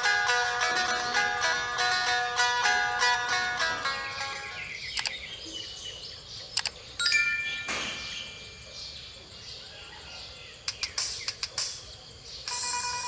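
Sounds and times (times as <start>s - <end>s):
plucked lute notes: 0.0s - 4.7s.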